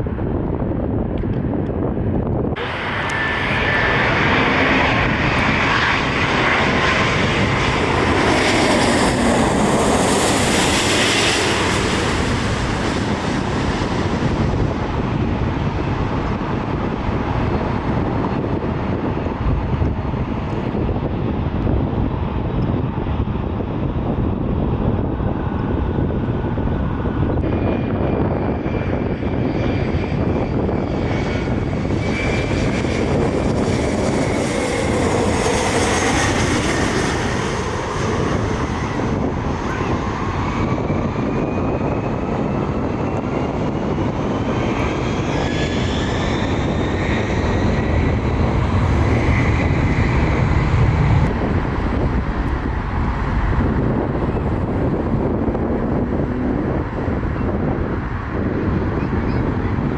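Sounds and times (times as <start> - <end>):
airliner engines rumbling: 0.0 - 59.9
whining engine tones: 2.5 - 20.0.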